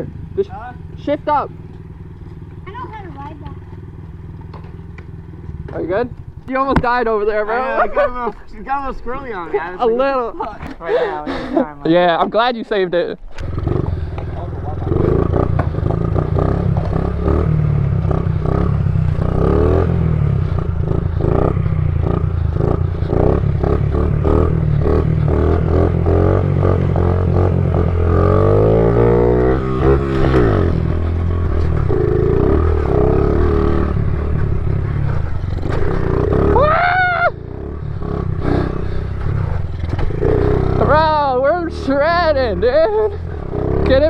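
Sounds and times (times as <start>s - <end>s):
small motorbike engine revving: 13.2s - 44.0s
bike clatter: 39.2s - 40.8s.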